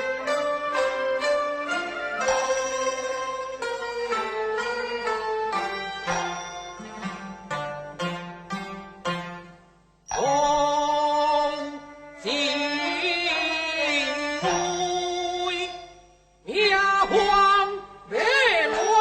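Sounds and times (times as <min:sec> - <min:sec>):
opera singing with sliding notes: 0:10.1 - 0:19.0.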